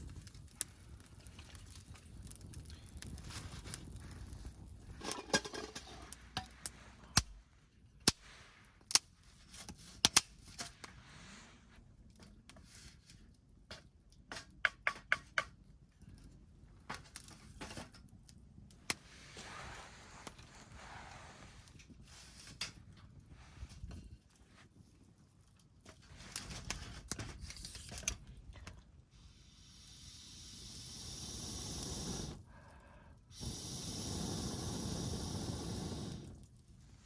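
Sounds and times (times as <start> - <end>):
hard objects clicking and knocking: 13.7 - 15.6.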